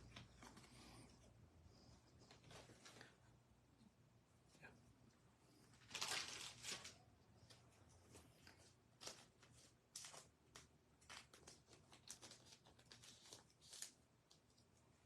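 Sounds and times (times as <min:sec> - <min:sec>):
trading cards rustling and scraping: 0:00.0 - 0:01.3, 0:02.1 - 0:03.2, 0:05.7 - 0:14.0.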